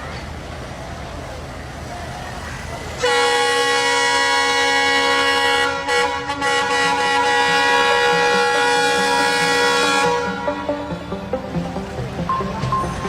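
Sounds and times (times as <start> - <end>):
train air horn blast: 3.0 - 11.6.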